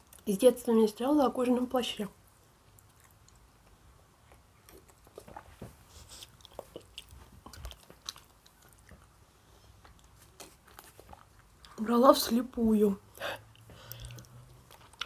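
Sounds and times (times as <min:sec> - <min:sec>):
chewing with wet mouth clicks: 0:02.6 - 0:09.2, 0:09.8 - 0:11.8, 0:13.5 - 0:15.0.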